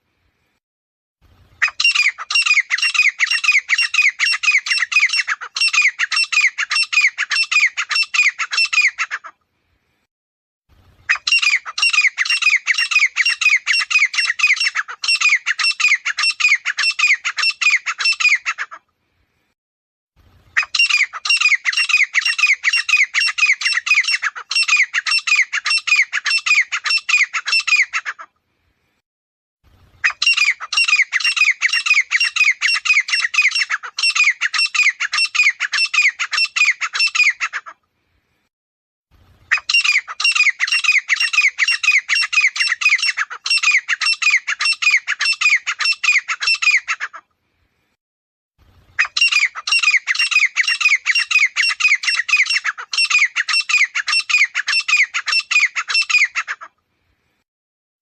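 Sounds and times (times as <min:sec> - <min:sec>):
grey francolin calling: 0:01.6 - 0:09.3, 0:11.1 - 0:18.8, 0:20.6 - 0:28.3, 0:30.0 - 0:37.8, 0:39.5 - 0:47.2, 0:49.0 - 0:56.7.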